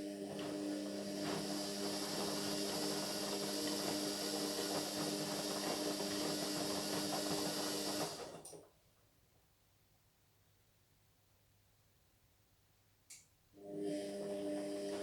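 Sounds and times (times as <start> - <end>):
washing machine humming and rattling: 0.0 - 8.5.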